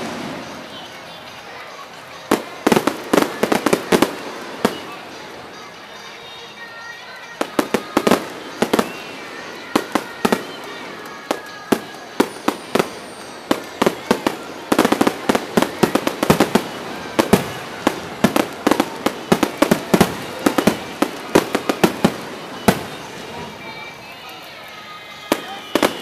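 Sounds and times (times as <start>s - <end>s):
firework shells bursting: 7.4s - 23.7s.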